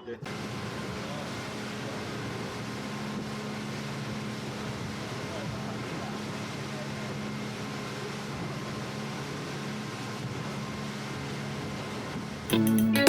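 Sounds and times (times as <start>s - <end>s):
low mechanical hum with hiss: 0.0s - 13.0s
loud music: 12.5s - 13.0s.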